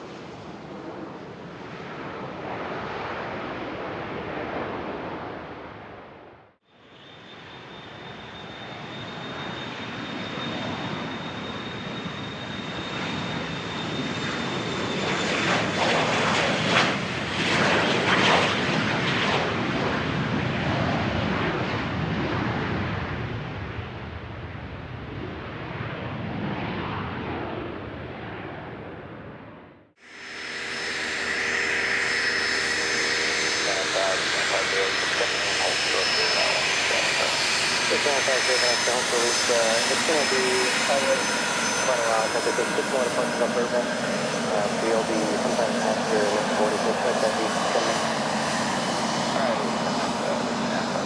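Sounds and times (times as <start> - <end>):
jet noise: 0.0 - 6.2, 6.9 - 51.0
jet engines passing with whine and roar: 0.0 - 51.0.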